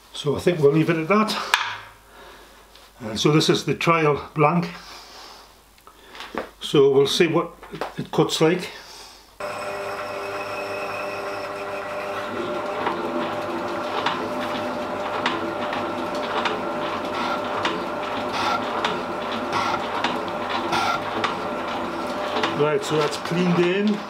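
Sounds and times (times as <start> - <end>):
metal shaping machine ticking: 9.4 - 23.4
machine motor hum: 9.4 - 24.0.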